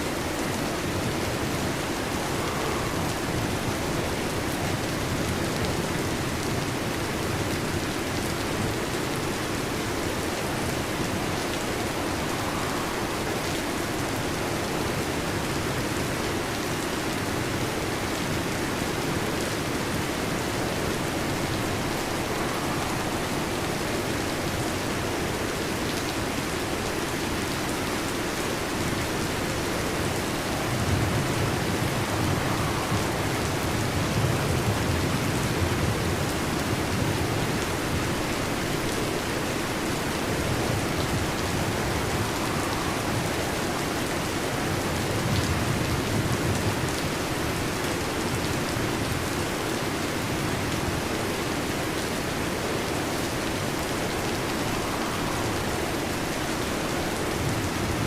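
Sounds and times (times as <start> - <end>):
heavy rain: 0.0 - 58.0
thunder rumbling: 20.2 - 25.7, 29.1 - 38.2, 40.0 - 46.9.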